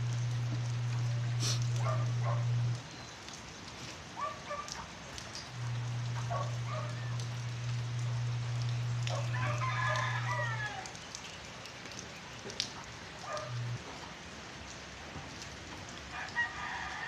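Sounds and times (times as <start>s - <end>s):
low hum: 0.0s - 2.8s, 5.5s - 9.6s
light rain hiss: 0.0s - 17.0s
rooster crowing: 9.1s - 10.9s, 16.1s - 17.0s.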